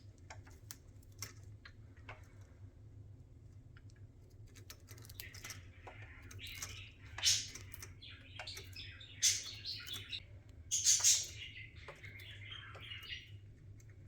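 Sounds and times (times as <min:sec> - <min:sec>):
budgerigar chirping: 0:06.4 - 0:13.3.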